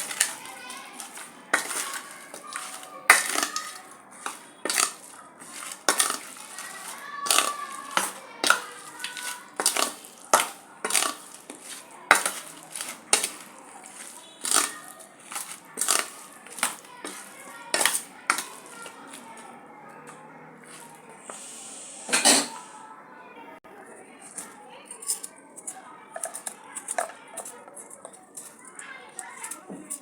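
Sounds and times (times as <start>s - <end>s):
metal utensil scraping a pan: 0.0s - 19.2s, 20.6s - 22.8s.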